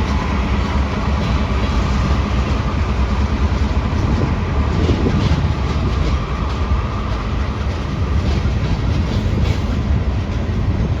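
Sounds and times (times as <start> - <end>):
freight train rumbling past: 0.0 - 11.0
train wheels ticking over rail joints: 0.0 - 11.0.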